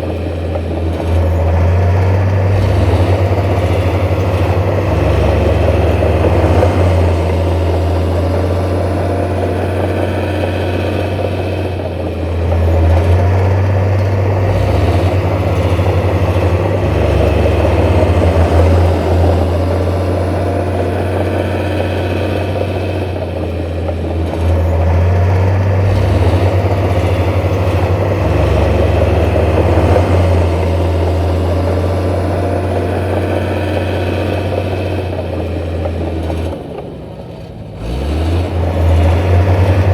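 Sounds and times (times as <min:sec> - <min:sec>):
heavy diesel engine rumbling: 0:00.0 - 0:39.9.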